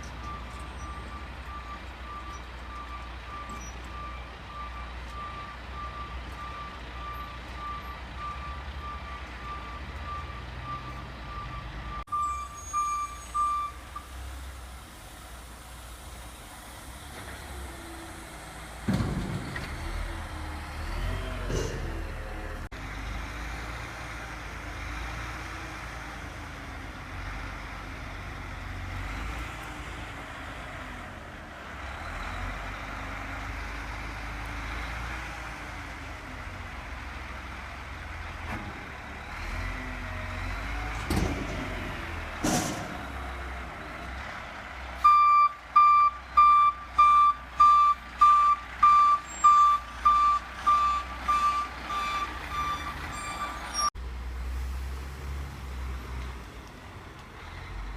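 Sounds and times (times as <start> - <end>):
reversing alarm beeping: 0.2 - 13.8, 45.0 - 53.9.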